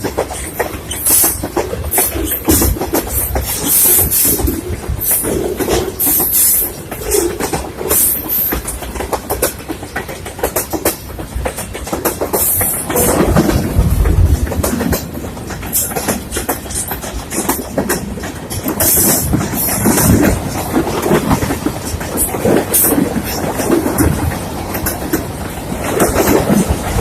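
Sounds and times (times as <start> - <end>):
train wheels clattering over rails: 0.0 - 27.0.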